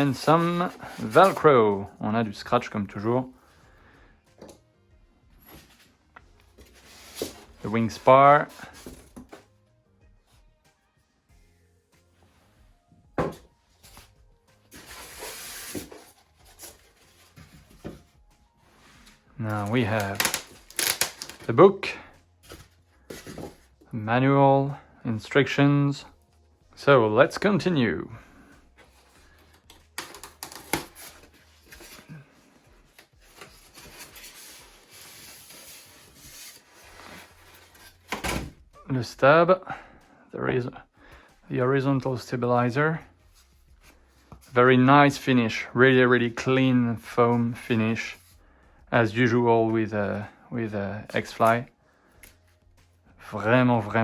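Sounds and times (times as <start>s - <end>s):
plastic packaging rustling: 19.0s - 21.6s.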